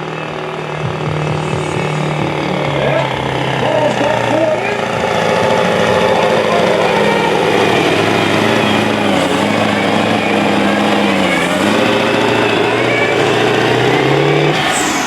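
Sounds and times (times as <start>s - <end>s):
truck engine at high revs: 0.0s - 15.0s.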